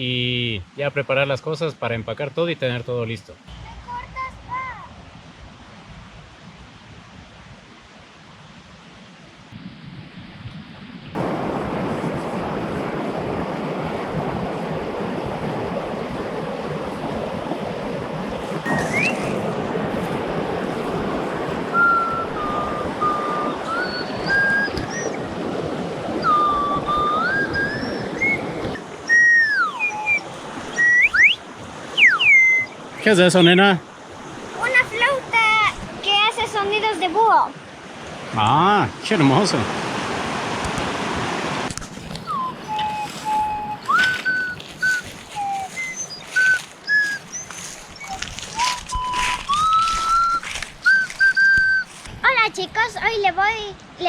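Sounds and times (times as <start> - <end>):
steady rushing noise: 3.5 - 7.8
flute whistle notes: 18.6 - 19.4, 21.7 - 25.3, 26.2 - 31.4, 32.0 - 32.8, 42.2 - 52.0.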